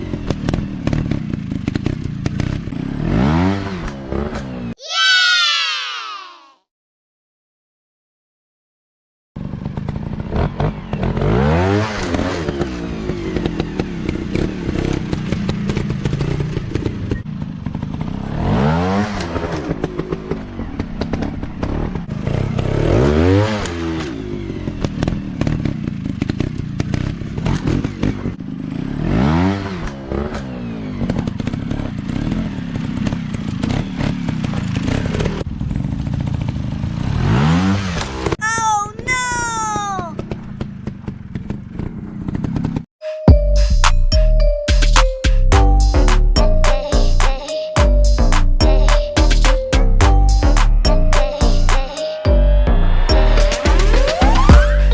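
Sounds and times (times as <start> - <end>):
dirt bike engine revving: 0.0 - 4.7, 9.4 - 35.4, 36.1 - 38.4.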